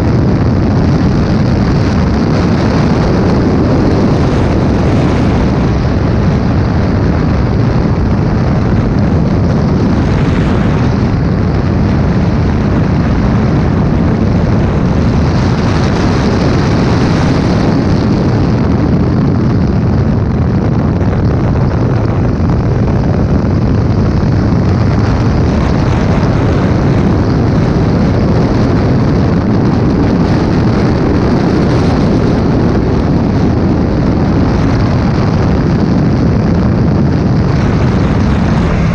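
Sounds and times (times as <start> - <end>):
wind buffeting microphone: 0.0 - 38.9
race car engine at speed: 37.3 - 38.9.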